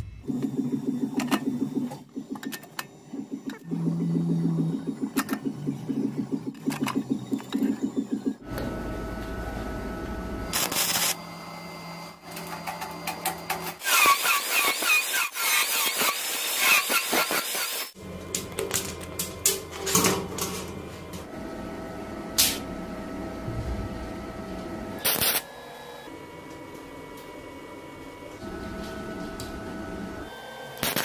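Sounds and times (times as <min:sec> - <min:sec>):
small motorised gears running: 0:00.3 - 0:08.5.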